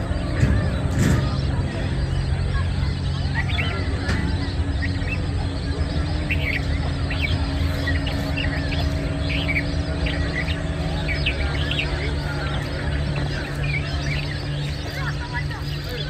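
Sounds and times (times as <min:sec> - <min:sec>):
birds chirping: 0:00.0 - 0:16.0
steady low hum: 0:00.0 - 0:16.0.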